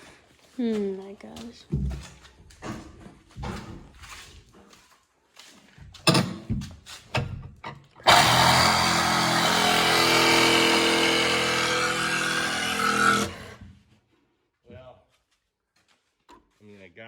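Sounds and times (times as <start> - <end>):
knocks: 6.0 - 8.2
cordless power tool running: 8.0 - 13.6.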